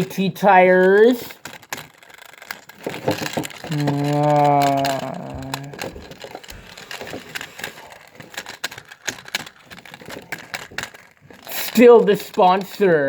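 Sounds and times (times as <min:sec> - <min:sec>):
clicks and taps of plastic toy: 0:00.0 - 0:13.0
humming voice tone: 0:03.7 - 0:06.0.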